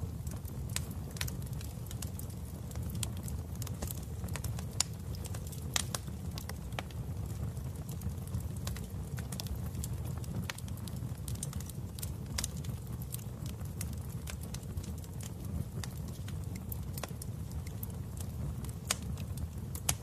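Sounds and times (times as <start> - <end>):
fire pops and snaps: 0.0 - 20.0
low rumble of fire: 0.0 - 20.0.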